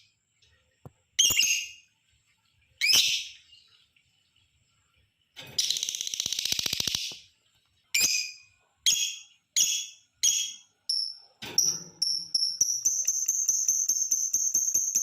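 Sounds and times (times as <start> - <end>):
lovebird rapid trill: 12.0 - 15.0.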